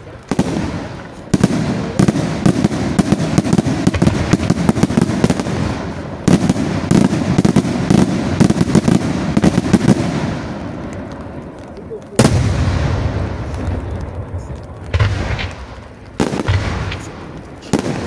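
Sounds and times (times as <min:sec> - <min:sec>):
fireworks bursting: 0:00.0 - 0:18.0
fireworks crackling: 0:00.0 - 0:18.0.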